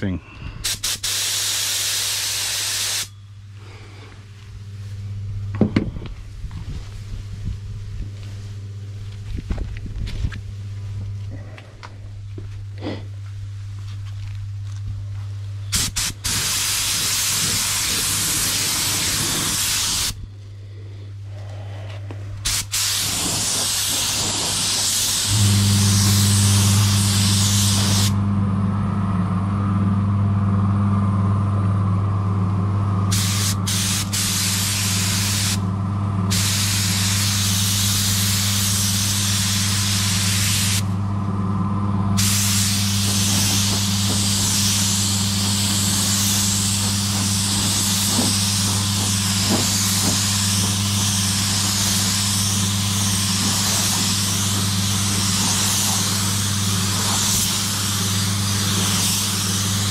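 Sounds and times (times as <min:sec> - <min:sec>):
steady low hum: 0:00.0 - 0:59.9
spray gun hissing: 0:00.6 - 0:03.2, 0:15.7 - 0:20.2, 0:22.4 - 0:28.2, 0:33.1 - 0:35.6, 0:36.3 - 0:40.9, 0:42.2 - 0:59.9.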